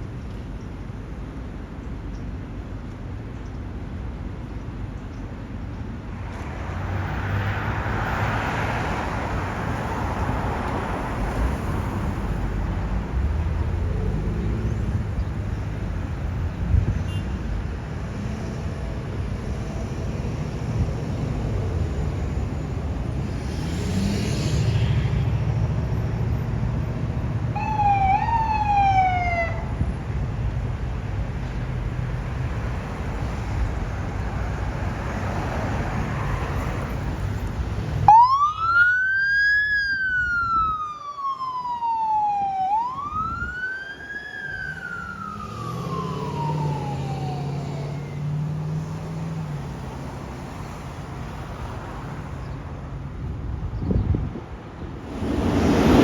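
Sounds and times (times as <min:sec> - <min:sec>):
electronic siren wailing: 0:27.6 - 0:29.6, 0:38.1 - 0:48.2.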